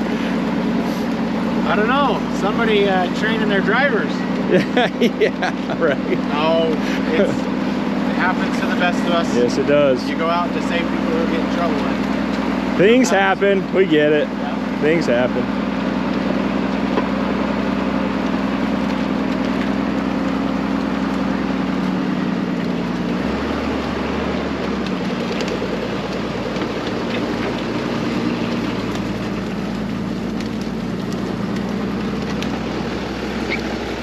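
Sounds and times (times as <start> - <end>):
snowcat engine running: 0.0 - 34.0.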